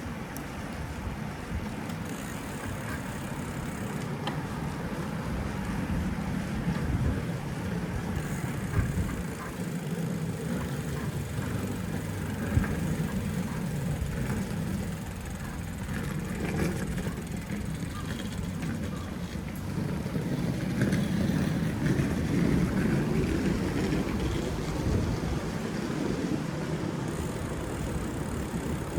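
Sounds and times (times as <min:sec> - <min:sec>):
passing traffic: 0:00.0 - 0:28.9
wind and road rumble: 0:00.0 - 0:28.9.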